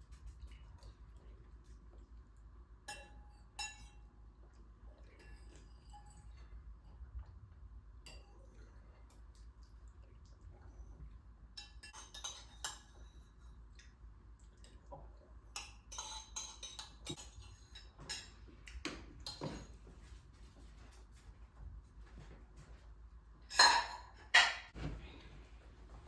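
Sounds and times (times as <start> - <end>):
dishes and cutlery clinking: 2.8 - 4.1, 5.1 - 6.5, 11.5 - 13.5, 15.5 - 20.9, 23.4 - 24.9.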